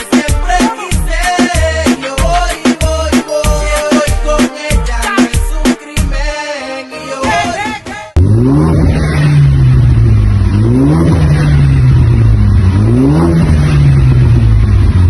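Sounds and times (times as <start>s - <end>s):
car engine revving: 8.2s - 15.0s.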